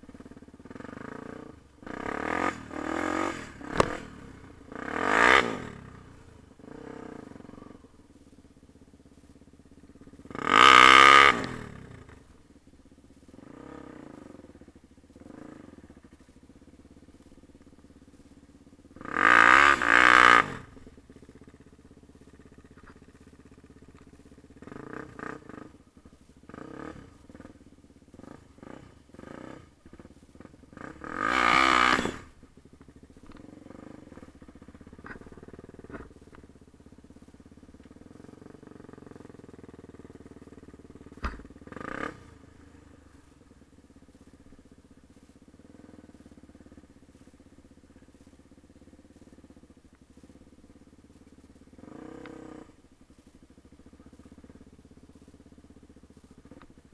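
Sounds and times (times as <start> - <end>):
dirt bike engine revving: 0.2 - 7.8, 10.0 - 12.2, 13.4 - 16.2, 19.0 - 20.8, 24.6 - 32.4, 37.8 - 44.4, 51.1 - 52.8.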